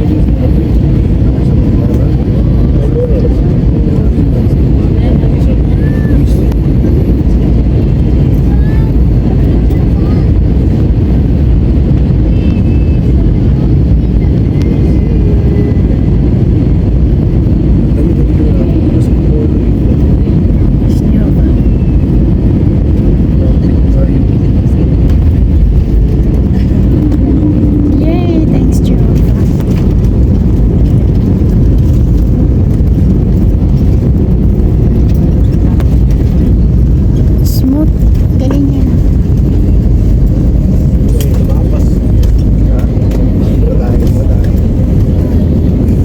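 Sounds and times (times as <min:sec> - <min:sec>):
airliner engine rumble in cabin: 0:00.0 - 0:46.0
wheels rattling on runway: 0:28.6 - 0:46.0.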